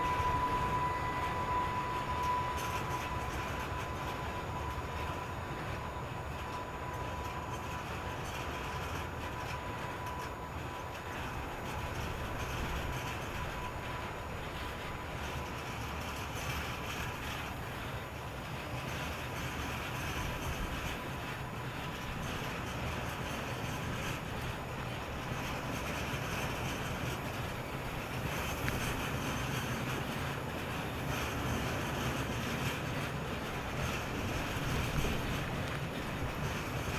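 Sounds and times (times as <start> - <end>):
thin steady high tone: 0.0 - 12.1
freight train rumbling: 0.0 - 36.9
wind buffeting microphone: 0.0 - 36.9.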